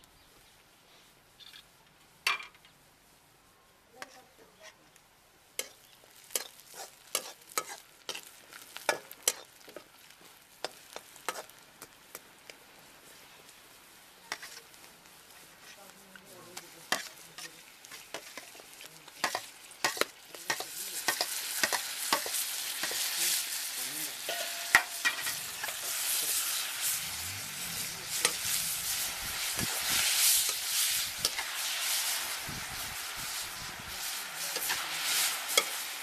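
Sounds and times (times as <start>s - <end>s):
vegetables sizzling in oil: 4.0s - 36.0s
steel spoon scraping pan: 5.6s - 8.3s, 14.3s - 14.7s, 24.2s - 31.6s.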